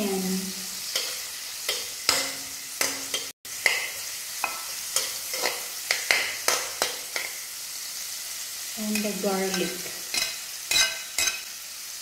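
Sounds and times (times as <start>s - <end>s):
onions sizzling in a wok: 0.0s - 12.0s
spatula scraping and clinking on pan: 0.8s - 7.4s, 8.9s - 11.6s.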